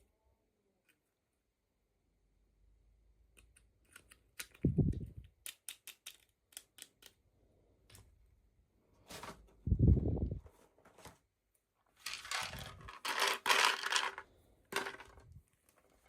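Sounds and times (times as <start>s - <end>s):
plastic parts clicking: 3.3s - 7.2s, 12.0s - 16.0s.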